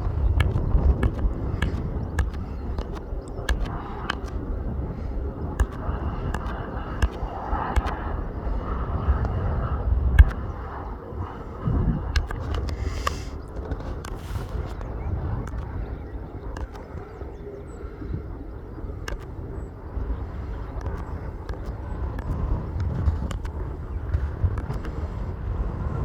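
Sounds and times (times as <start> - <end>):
light aircraft engine whine: 0.0 - 26.0
wind buffeting microphone: 0.0 - 26.0
sharp clicks: 0.3 - 4.5, 5.5 - 8.1, 10.2 - 10.5, 12.1 - 15.8.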